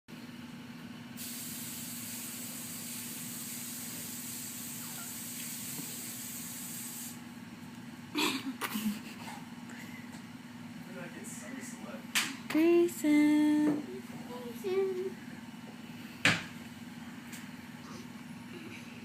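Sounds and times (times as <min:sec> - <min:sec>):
steady hiss: 0:01.2 - 0:07.2
low steady hum: 0:06.7 - 0:19.0.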